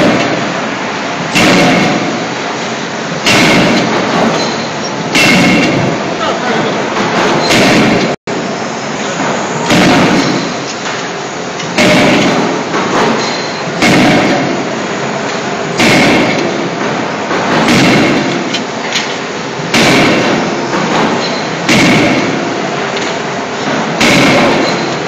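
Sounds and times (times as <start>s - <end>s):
steady machinery noise: 0.0s - 25.0s
forging hammer blows: 1.3s - 2.3s, 3.2s - 6.0s, 11.8s - 14.8s, 15.8s - 18.6s, 19.7s - 23.1s, 23.7s - 25.0s.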